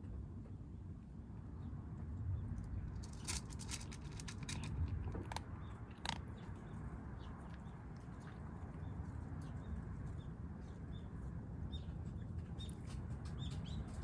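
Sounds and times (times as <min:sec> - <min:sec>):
kittens crunching food: 0:02.7 - 0:09.0.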